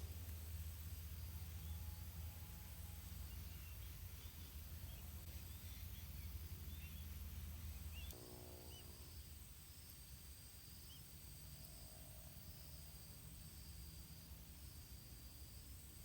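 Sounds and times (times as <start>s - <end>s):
small birds chirping: 3.2s - 9.0s.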